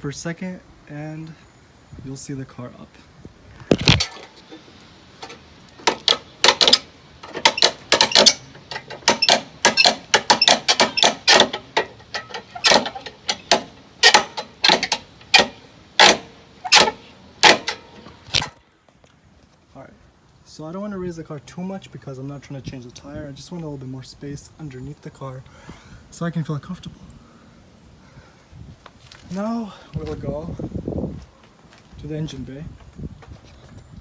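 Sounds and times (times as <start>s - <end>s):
scissor jack clicking and clanking: 5.3s - 18.5s.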